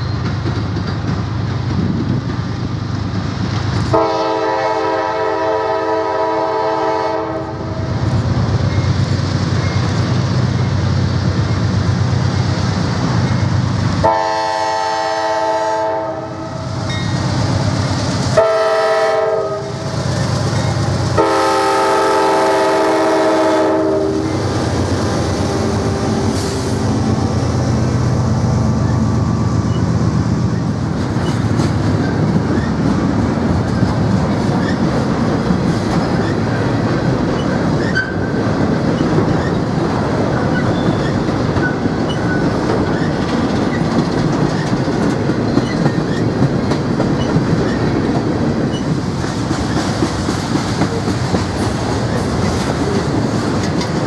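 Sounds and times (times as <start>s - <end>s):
diesel locomotives working: 0.0s - 54.0s
train rumble and wheel clickety-clack: 0.0s - 54.0s
train air horn blasts: 3.9s - 7.9s, 14.0s - 16.7s, 18.4s - 19.8s, 21.2s - 24.4s.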